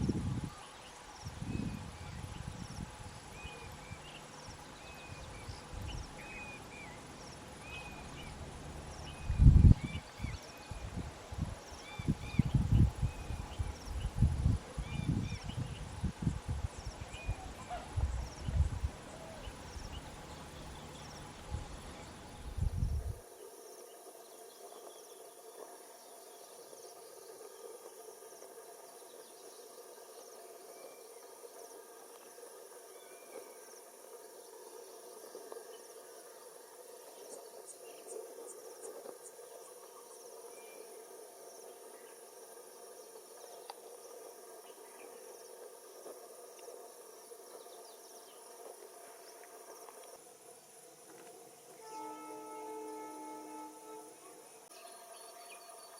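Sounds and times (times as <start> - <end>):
wind buffeting microphone: 0.0 - 6.4, 8.0 - 23.2
crickets chirring: 0.0 - 55.9.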